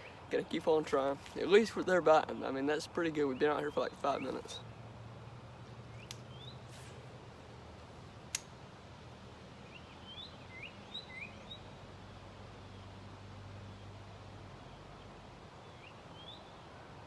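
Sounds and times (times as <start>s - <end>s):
small birds chirping: 0.0s - 7.5s, 9.5s - 16.7s
sharp click: 8.3s - 8.5s.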